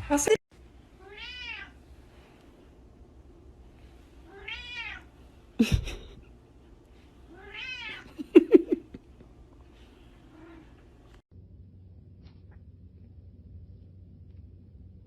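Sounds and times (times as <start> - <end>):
cat meowing: 1.0 - 1.8, 4.3 - 5.1, 7.3 - 8.1.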